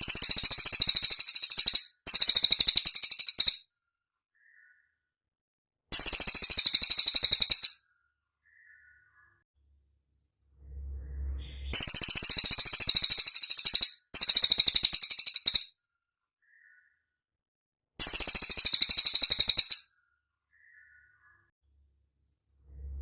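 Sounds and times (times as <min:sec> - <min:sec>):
songbird chattering trill: 0:05.9 - 0:07.8, 0:08.4 - 0:09.4, 0:11.7 - 0:15.7, 0:18.0 - 0:19.8
faint low hum: 0:09.6 - 0:12.1, 0:22.3 - 0:23.0.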